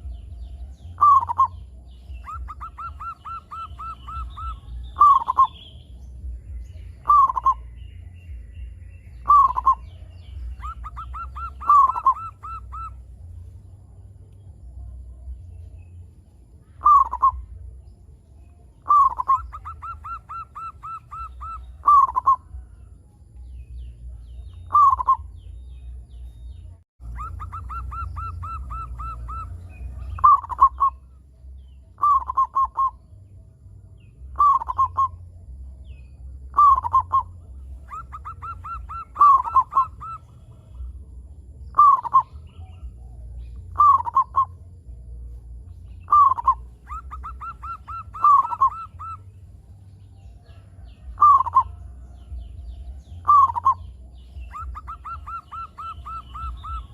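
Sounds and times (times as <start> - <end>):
dove cooing: 0.0 - 5.8, 7.0 - 7.8, 9.2 - 13.3, 16.8 - 17.6, 18.8 - 23.0, 24.6 - 25.4, 27.1 - 31.2, 32.0 - 33.0, 34.3 - 35.4, 36.5 - 41.1, 41.7 - 44.6, 46.0 - 49.4, 50.2 - 56.9.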